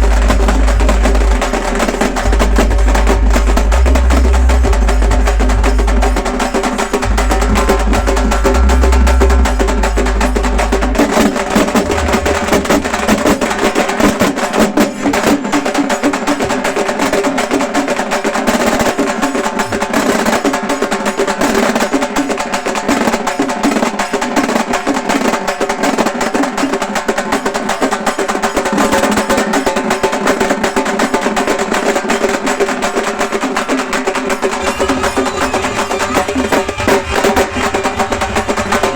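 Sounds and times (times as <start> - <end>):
deep low rumble: 0.0 - 13.6
frame drums struck with sticks: 0.0 - 38.9.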